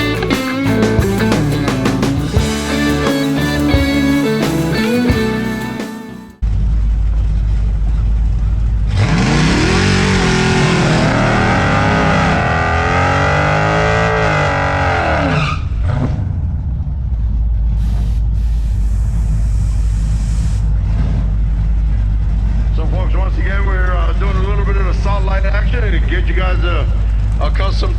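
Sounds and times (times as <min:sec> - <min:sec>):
car engine revving: 0:00.0 - 0:27.4
low engine rumble: 0:06.4 - 0:09.1, 0:15.6 - 0:27.9.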